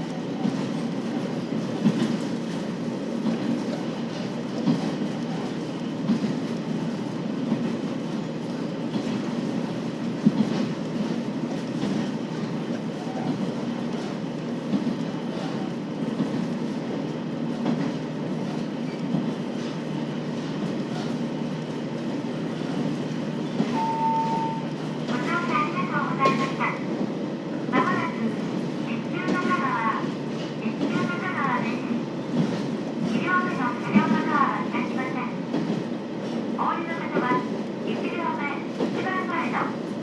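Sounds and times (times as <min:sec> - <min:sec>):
rail-joint clicks: 0:00.0 - 0:27.0
short steady beep: 0:23.7 - 0:24.7.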